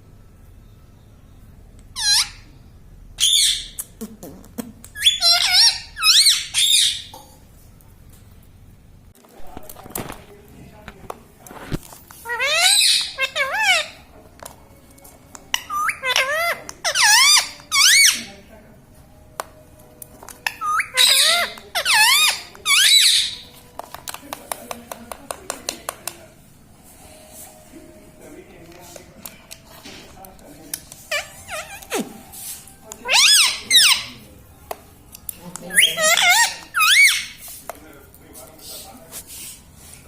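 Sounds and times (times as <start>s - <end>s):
parrot calling: 1.9s - 2.6s, 3.2s - 4.0s, 4.9s - 7.2s, 12.2s - 14.1s, 15.5s - 18.4s, 20.4s - 23.6s, 31.0s - 32.3s, 33.0s - 34.3s, 35.7s - 37.5s.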